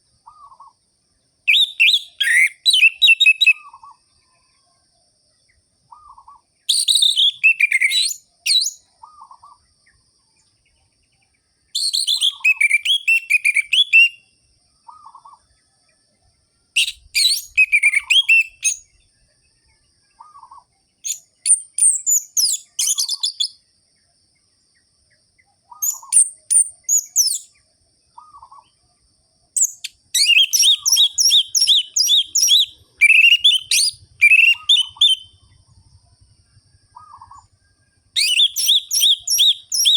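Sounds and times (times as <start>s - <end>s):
thrush whistling song: 1.5s - 4.0s, 5.9s - 9.6s, 11.8s - 14.3s, 16.8s - 19.1s, 20.2s - 23.6s, 25.7s - 27.6s, 29.6s - 35.7s, 36.8s - 39.9s.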